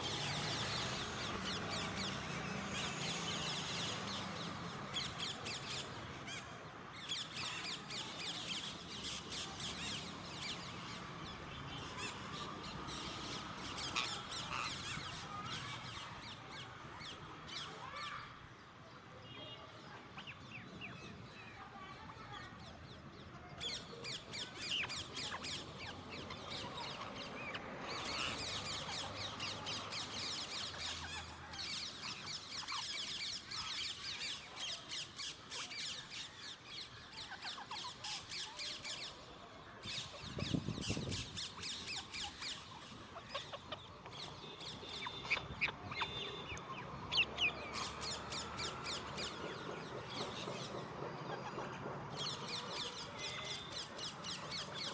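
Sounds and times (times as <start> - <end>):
parakeets squawking harshly: 13.6 - 16.0.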